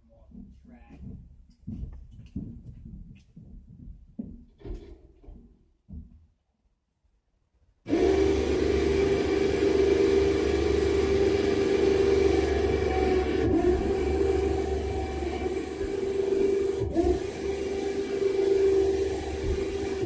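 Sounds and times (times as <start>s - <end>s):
winch motor whining: 7.9s - 20.0s.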